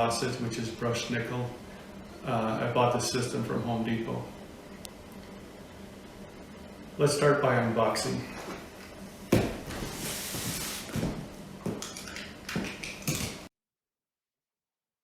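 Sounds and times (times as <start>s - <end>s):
box knocks and clunks: 9.3s - 10.0s.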